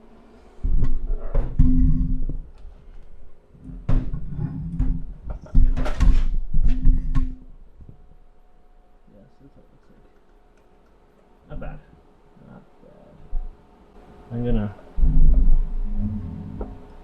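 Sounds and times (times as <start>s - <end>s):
microphone handling rumble: 15.0s - 16.9s.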